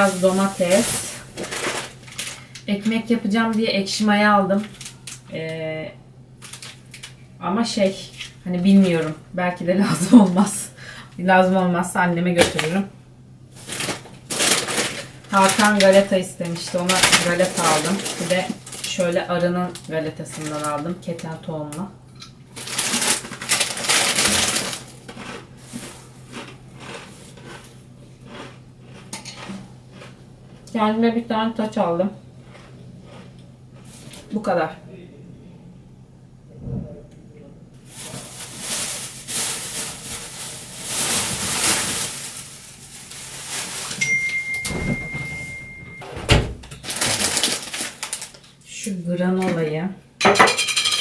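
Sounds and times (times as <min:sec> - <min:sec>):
plastic bags rustling: 0:00.0 - 0:02.6, 0:06.4 - 0:07.2, 0:08.0 - 0:09.3, 0:13.5 - 0:20.9, 0:22.5 - 0:27.6, 0:37.8 - 0:48.6
plastic packaging crinkling: 0:00.0 - 0:02.6, 0:06.4 - 0:07.2, 0:13.5 - 0:20.8, 0:22.6 - 0:27.6, 0:37.8 - 0:45.6, 0:46.5 - 0:48.6
high electronic beep: 0:44.0 - 0:46.1.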